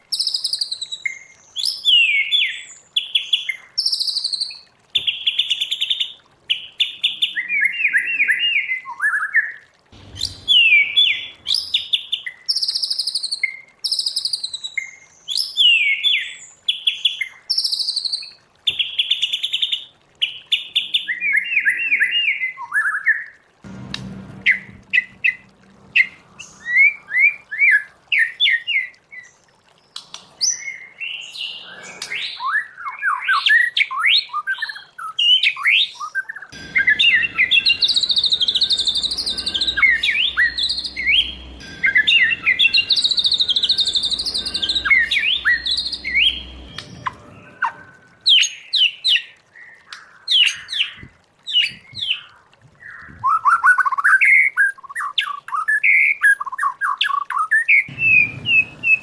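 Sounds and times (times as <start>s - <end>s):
bird singing whistled phrases: 7.0s - 16.4s, 30.4s - 49.8s.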